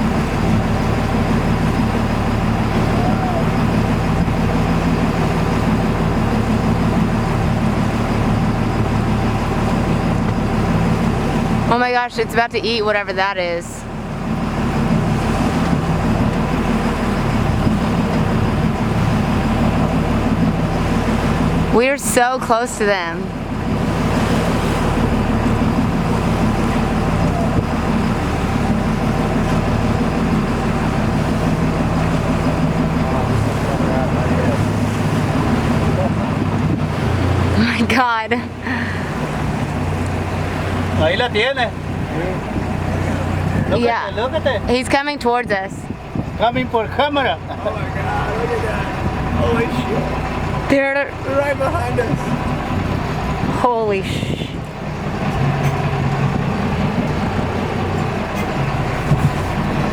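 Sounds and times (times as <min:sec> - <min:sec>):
boat engine drone: 0:00.0 - 0:59.9
water hum: 0:00.0 - 0:59.9
rushing wind: 0:13.5 - 0:21.9, 0:22.9 - 0:41.0, 0:41.7 - 0:44.0, 0:44.6 - 0:48.0, 0:48.6 - 0:59.9.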